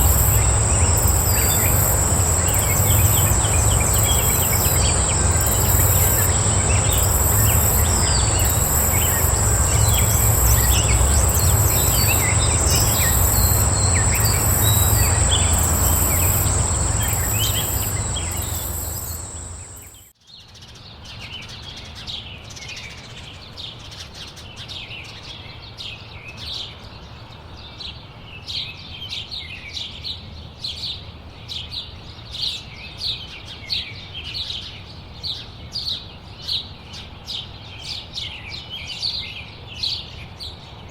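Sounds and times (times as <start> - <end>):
broad rush of background noise: 0.0 - 20.0
high-pitched insect buzz: 0.0 - 20.0
pulsing trill: 0.0 - 20.0
small songbirds chirping: 0.0 - 20.0.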